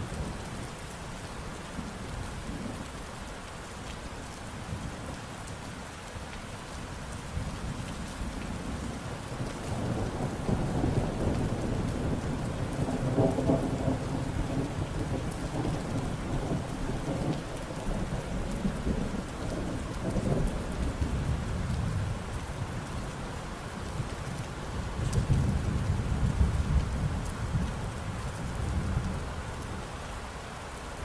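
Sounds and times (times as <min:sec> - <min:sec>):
steady rain: 0:00.0 - 0:31.0
thunder rumbling: 0:09.7 - 0:22.3.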